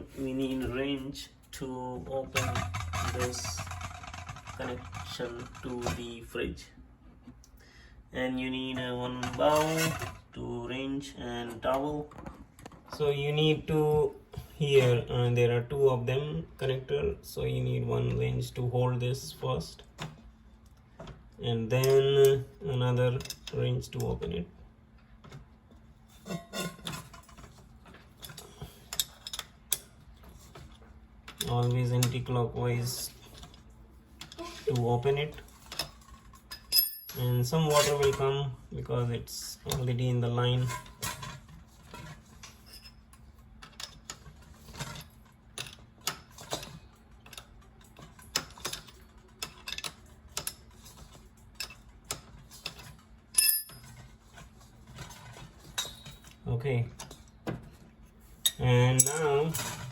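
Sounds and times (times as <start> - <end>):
wrenches clicking and clinking: 1.5 - 6.2, 26.1 - 38.4, 40.5 - 56.4, 58.4 - 59.9
metallic clank and ring: 36.5 - 37.4, 53.4 - 53.9.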